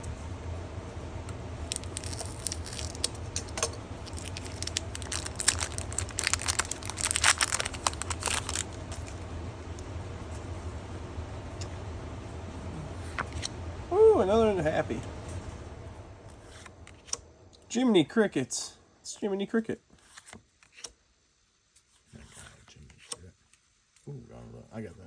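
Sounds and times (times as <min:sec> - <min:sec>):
steady low hum: 0:00.0 - 0:19.9
foil wrapper crinkling and tearing: 0:01.7 - 0:09.2.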